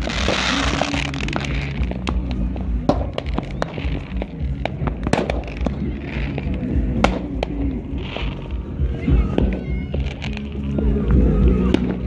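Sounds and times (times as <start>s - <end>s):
firecracker bangs: 0.0s - 8.4s
steady low rumble: 0.0s - 12.0s.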